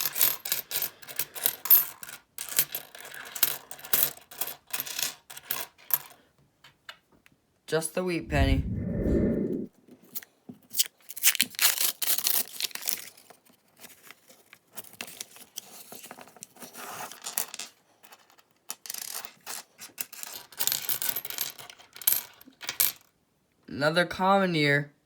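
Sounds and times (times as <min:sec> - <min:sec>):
coins clinking and scraping: 0:00.0 - 0:06.2, 0:17.0 - 0:22.9.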